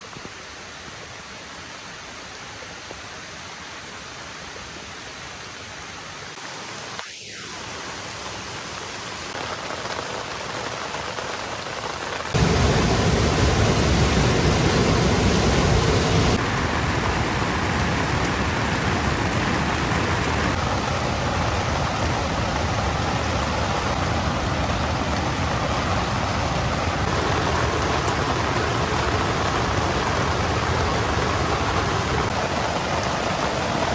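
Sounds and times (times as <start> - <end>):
heavy rain falling: 7.6 - 33.9.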